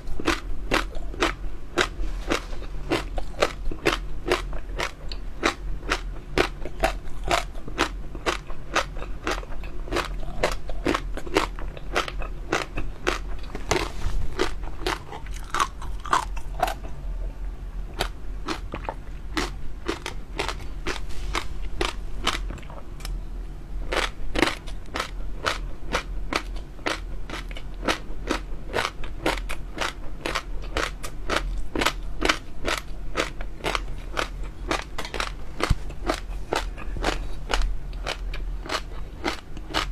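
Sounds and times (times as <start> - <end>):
chewing crunchy jelly pearls: 0.0 - 23.2, 23.8 - 39.9.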